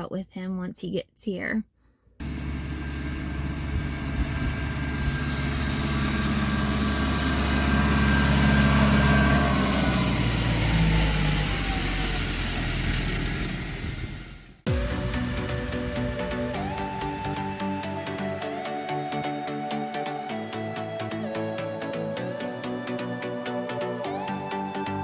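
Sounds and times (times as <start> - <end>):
whine sliding down in pitch: 2.2 - 14.1, 14.7 - 25.0
tractor engine running: 2.2 - 18.6.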